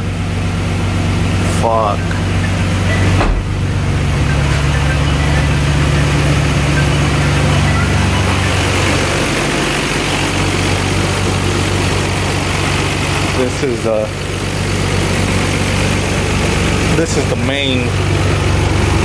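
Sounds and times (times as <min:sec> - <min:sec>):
car engine idling: 0:00.0 - 0:19.0
car door shutting: 0:02.9 - 0:06.6.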